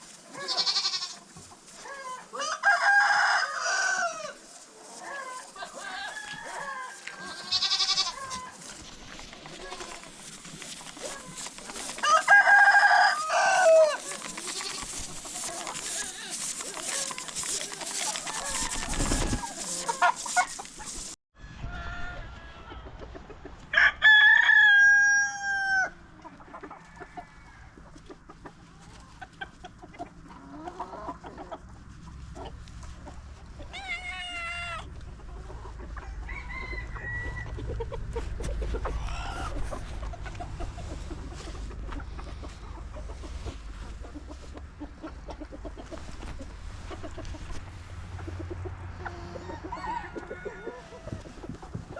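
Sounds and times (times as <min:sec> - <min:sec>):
chickens clucking: 0:00.0 - 0:21.2, 0:22.6 - 0:23.7, 0:26.0 - 0:51.9
rooster crowing: 0:02.0 - 0:04.4, 0:05.0 - 0:08.6, 0:11.0 - 0:14.9, 0:15.5 - 0:20.6, 0:21.4 - 0:22.9, 0:23.7 - 0:26.0, 0:36.0 - 0:37.6, 0:49.0 - 0:51.2.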